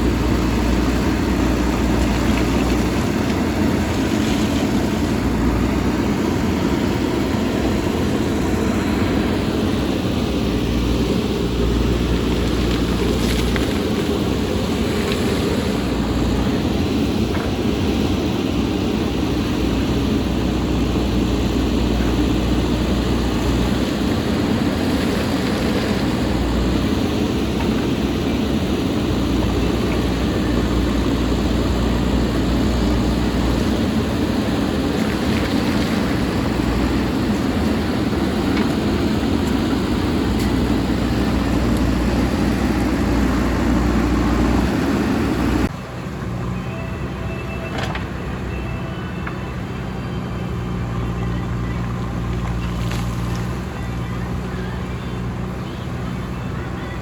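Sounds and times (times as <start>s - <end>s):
diesel engine working under load: 0.0s - 57.0s.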